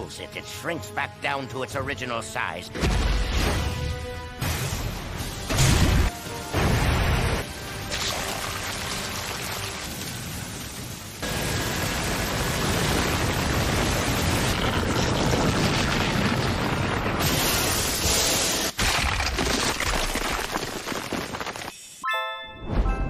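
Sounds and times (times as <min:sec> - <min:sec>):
background music: 0:00.0 - 0:10.3, 0:22.0 - 0:23.0
heavy booming blasts: 0:11.2 - 0:18.0.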